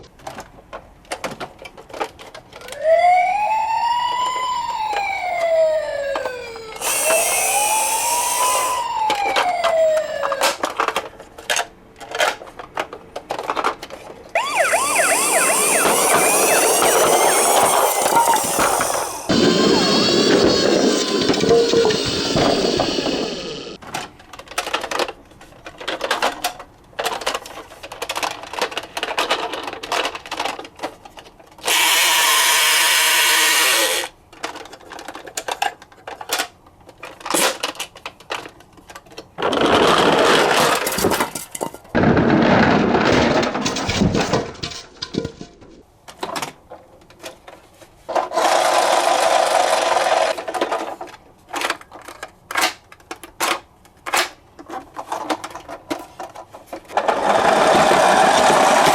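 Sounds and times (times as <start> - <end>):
toy cars clattering: 6.2 - 9.5, 10.2 - 31.8, 33.8 - 58.9
loud whirring: 6.8 - 8.9, 14.4 - 23.8.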